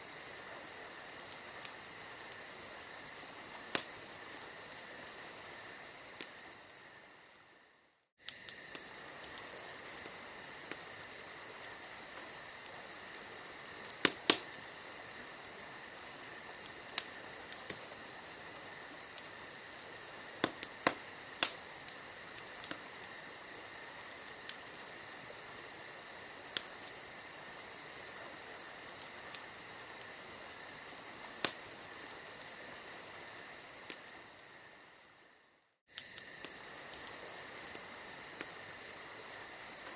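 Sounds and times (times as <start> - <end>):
campfire crackling: 0.0 - 39.9
crickets chirring: 0.0 - 39.9.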